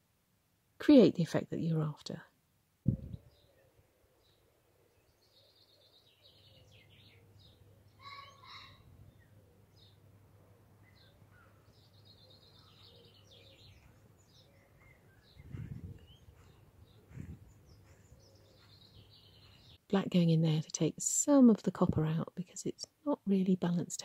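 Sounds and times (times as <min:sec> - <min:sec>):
soft low thumps: 0:02.8 - 0:03.3, 0:14.8 - 0:18.8
faint birdsong: 0:03.0 - 0:21.0
steady low hum: 0:15.4 - 0:18.7.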